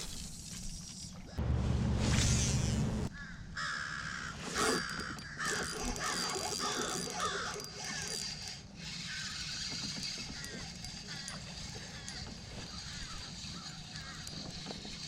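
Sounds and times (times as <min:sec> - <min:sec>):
low rumble: 0:01.4 - 0:03.1.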